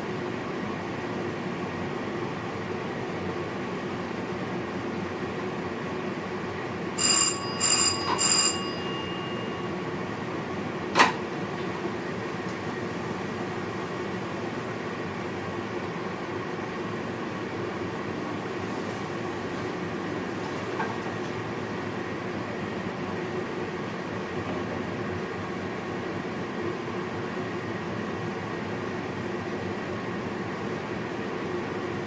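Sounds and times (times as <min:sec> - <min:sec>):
train cab running noise: 0:06.0 - 0:22.6.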